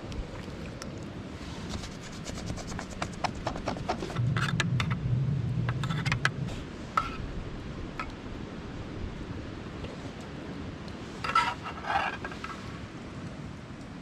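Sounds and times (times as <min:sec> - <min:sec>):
low hum: 0:03.4 - 0:09.8.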